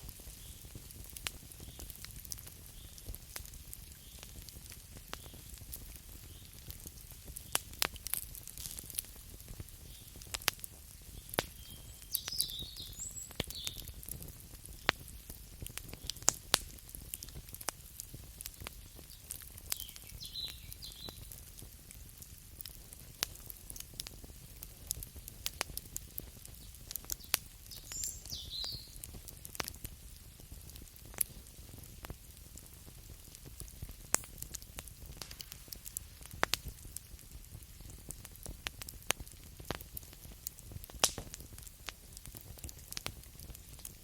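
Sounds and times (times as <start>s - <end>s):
campfire crackling: 0.0s - 44.0s
high chirping calls: 11.6s - 13.8s, 27.7s - 29.0s.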